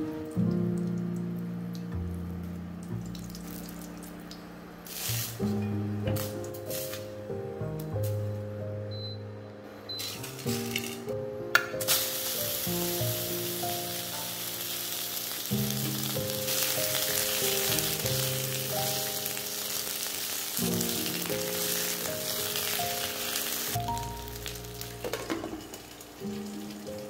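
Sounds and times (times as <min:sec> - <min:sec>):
meat sizzling in hot oil: 0:04.8 - 0:05.6, 0:11.8 - 0:27.0
melodic background music: 0:05.4 - 0:27.0.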